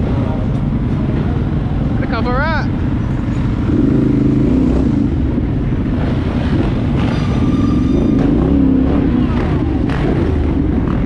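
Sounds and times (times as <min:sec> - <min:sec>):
dirt bike engines revving: 0:00.0 - 0:11.0
high-pitched whine: 0:06.4 - 0:10.0.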